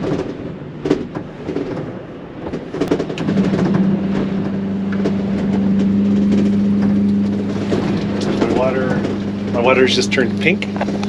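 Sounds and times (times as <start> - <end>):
knocks and rattles: 0.0 - 11.0
water pump humming: 3.2 - 11.0.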